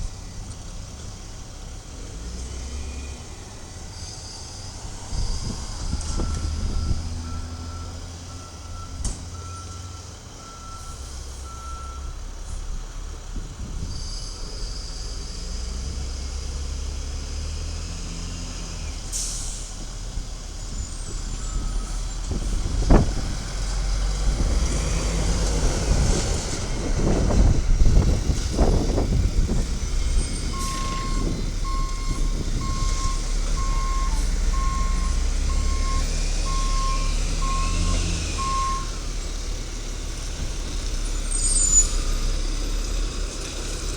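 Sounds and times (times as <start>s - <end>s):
garbage truck running: 0.0s - 43.9s
backup alarm beeping: 30.6s - 38.9s.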